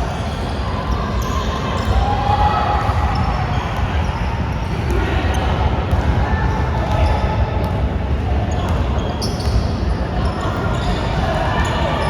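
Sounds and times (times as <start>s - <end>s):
players' voices: 0.0s - 12.0s
basketball bouncing on court: 4.7s - 9.7s.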